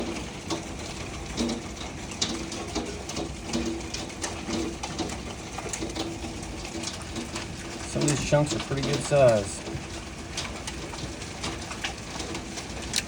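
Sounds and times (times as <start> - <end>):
hailstones striking hard surfaces: 3.2 - 13.0
heavy rain hiss: 7.5 - 10.4.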